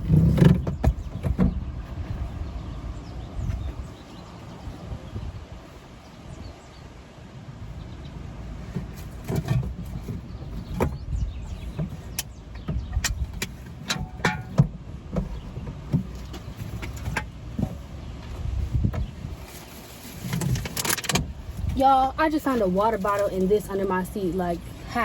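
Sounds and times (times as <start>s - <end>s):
steady low rumble: 0.0s - 25.0s
objects clicking and knocking: 20.2s - 21.3s.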